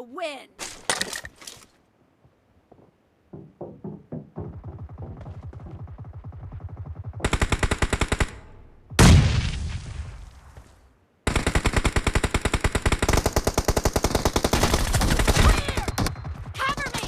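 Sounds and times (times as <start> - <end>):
video game automatic gunfire: 4.5 - 9.2, 11.3 - 17.0
loud explosion: 8.9 - 10.4.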